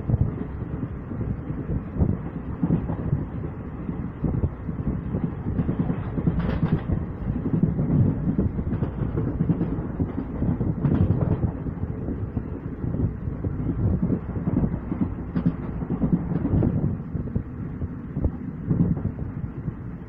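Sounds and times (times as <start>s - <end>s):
train rumble and rattle: 0.0s - 20.0s
wheels clacking over track: 5.0s - 12.6s.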